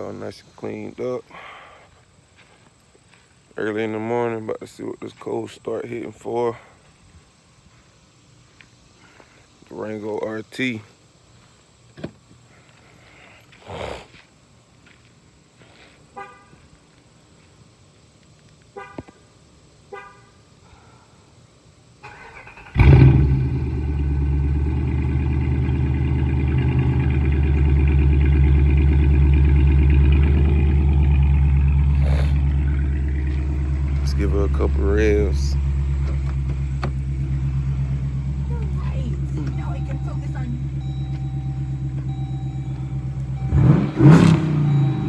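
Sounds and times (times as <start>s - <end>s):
car engine idling: 22.0s - 45.0s
short beeps: 38.6s - 45.0s.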